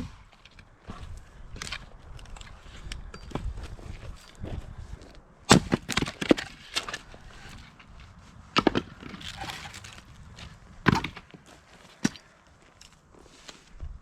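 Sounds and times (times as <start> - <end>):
axe striking firewood: 5.5 - 7.9, 8.5 - 10.0, 10.8 - 12.3.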